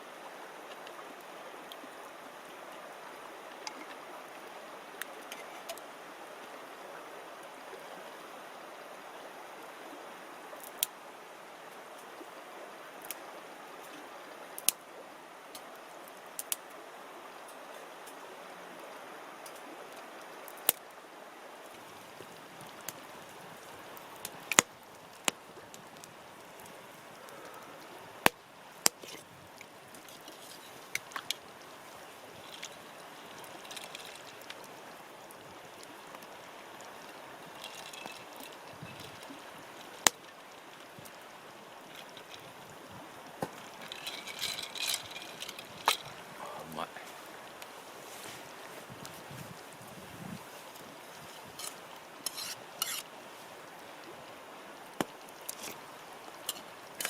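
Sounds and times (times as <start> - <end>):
steady rushing hiss: 8.2 - 57.0
campfire crackling and popping: 10.6 - 11.0, 14.6 - 14.8, 15.5 - 16.8, 18.8 - 21.0, 21.6 - 57.0.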